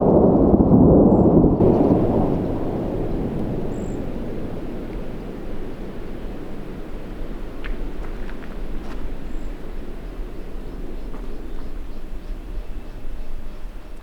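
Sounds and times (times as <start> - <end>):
thunder rumble: 0.0 - 14.0.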